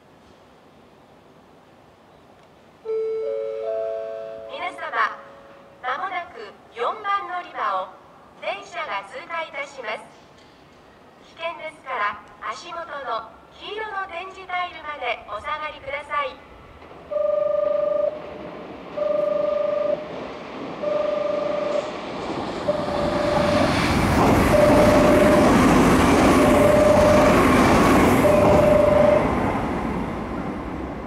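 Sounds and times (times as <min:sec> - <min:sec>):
platform warning tone beeping: 0:02.9 - 0:05.3, 0:19.0 - 0:20.0, 0:20.8 - 0:21.9, 0:22.7 - 0:23.7, 0:24.5 - 0:25.6, 0:26.4 - 0:27.5, 0:28.2 - 0:29.4
train wheels and motors rumbling: 0:18.1 - 0:31.0.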